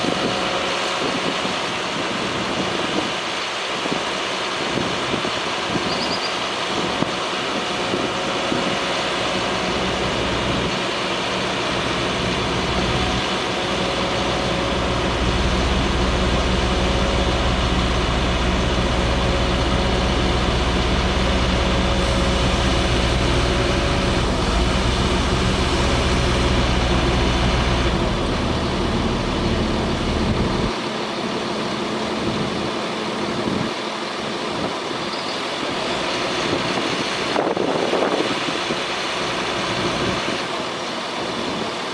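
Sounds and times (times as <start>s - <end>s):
truck engine running: 6.4s - 41.6s
deep engine drone: 6.8s - 33.4s.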